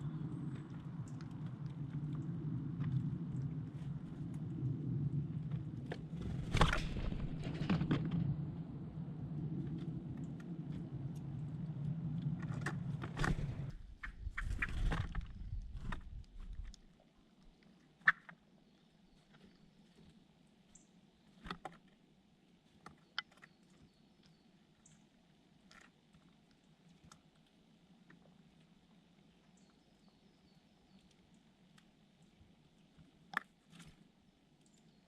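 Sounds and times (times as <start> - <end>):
low steady hum: 0.0 - 17.9.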